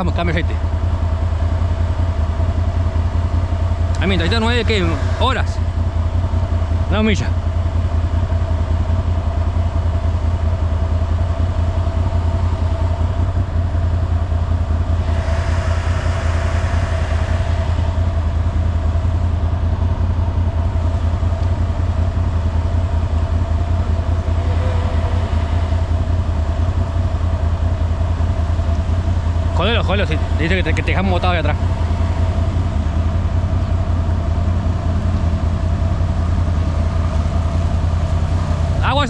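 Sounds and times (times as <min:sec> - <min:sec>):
atv engine idling: 0:00.0 - 0:39.0
hiss: 0:14.9 - 0:19.3.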